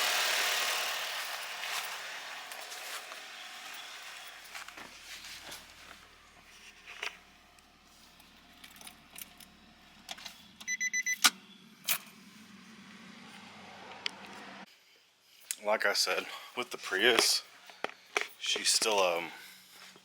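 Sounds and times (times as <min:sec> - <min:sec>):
short high electronic beeps: 0:10.7 - 0:11.2.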